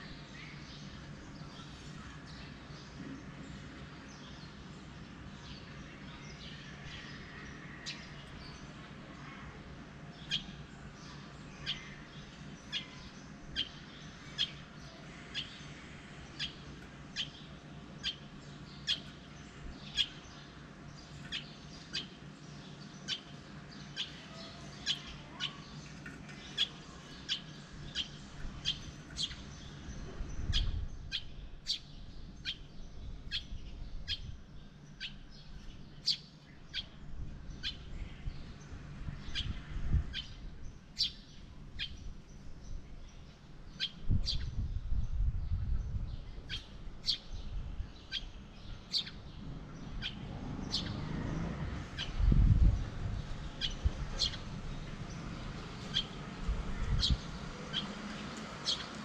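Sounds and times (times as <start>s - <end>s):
small bird chirping: 17.2s - 38.6s, 39.3s - 54.5s, 55.1s - 59.0s.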